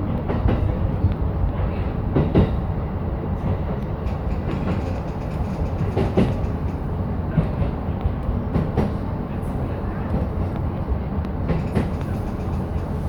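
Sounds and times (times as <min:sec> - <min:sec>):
electric train rumbling: 0:00.0 - 0:13.0
wheels clacking over rail joints: 0:03.5 - 0:07.8, 0:11.4 - 0:13.0.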